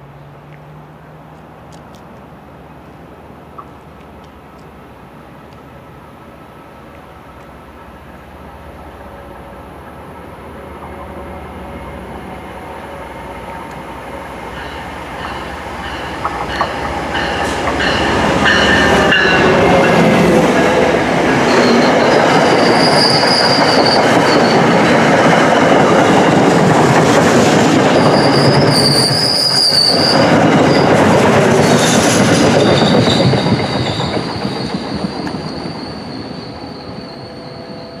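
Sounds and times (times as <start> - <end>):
train wheels rumbling on rail: 1.1 - 38.0
high wheel squeals: 21.4 - 24.8, 27.8 - 31.0, 31.8 - 38.0.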